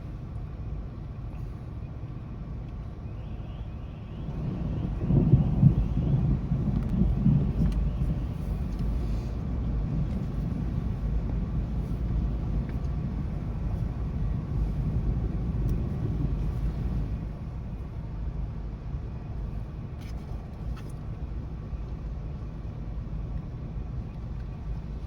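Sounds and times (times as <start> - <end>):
thunder rumbling: 4.2 - 18.4.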